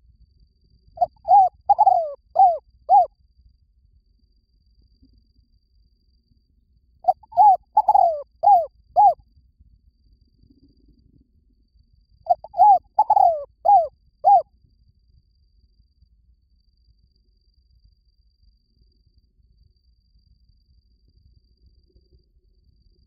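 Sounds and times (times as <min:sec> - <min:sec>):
dove cooing: 0:01.0 - 0:03.1, 0:07.1 - 0:09.2, 0:12.3 - 0:14.4.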